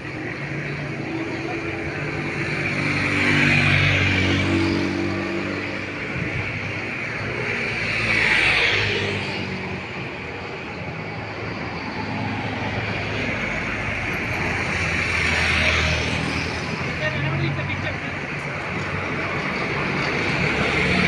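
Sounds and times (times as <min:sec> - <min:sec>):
vehicles passing: 0:00.0 - 0:21.0.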